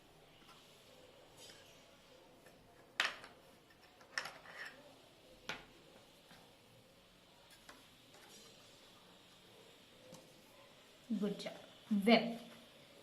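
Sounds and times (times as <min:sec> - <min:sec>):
small objects tapping on table: 0:03.0 - 0:04.7.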